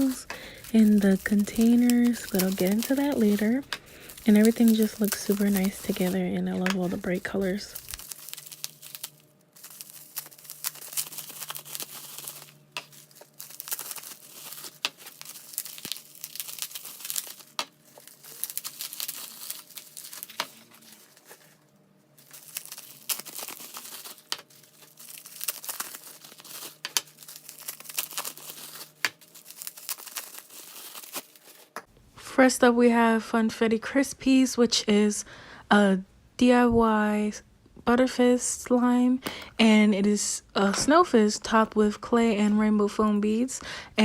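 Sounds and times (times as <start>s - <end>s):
slime squeezed crackling: 0.8s - 20.6s.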